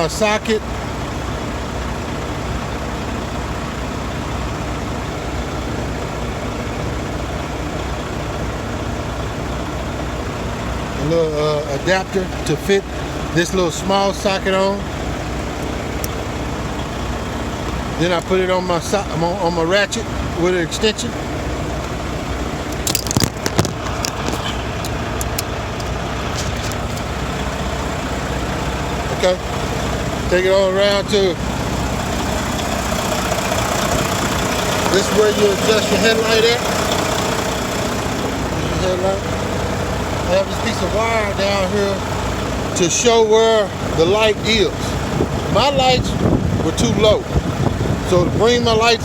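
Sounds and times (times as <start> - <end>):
diesel truck engine idling: 0.0 - 49.0
sharp clicks and clatters: 22.7 - 27.1.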